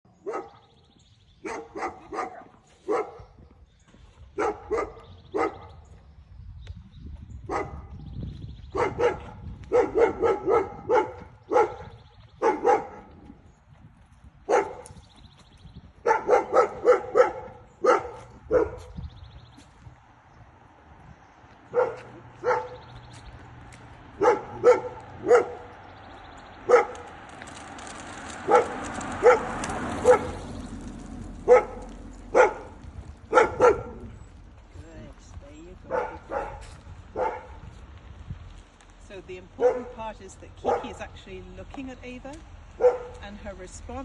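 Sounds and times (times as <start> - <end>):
dog barking: 0.2 - 0.7, 1.4 - 3.3, 4.4 - 5.8, 7.5 - 8.0, 8.7 - 13.2, 14.5 - 15.0, 16.0 - 19.0, 21.7 - 22.9, 24.2 - 25.8, 26.6 - 27.0, 28.4 - 30.4, 31.4 - 34.2, 35.9 - 37.7, 39.6 - 40.0, 40.6 - 41.0, 42.8 - 43.2.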